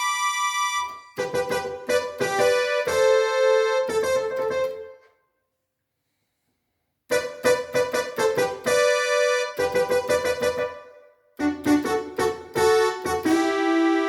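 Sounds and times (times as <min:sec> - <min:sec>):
keyboard playing piano notes: 0:00.0 - 0:05.1, 0:07.1 - 0:14.0.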